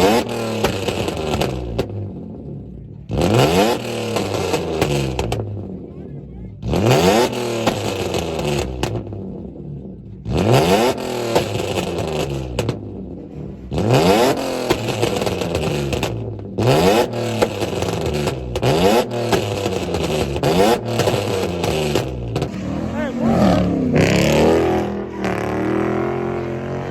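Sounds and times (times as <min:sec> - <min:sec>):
car engine revving: 0:00.0 - 0:26.9.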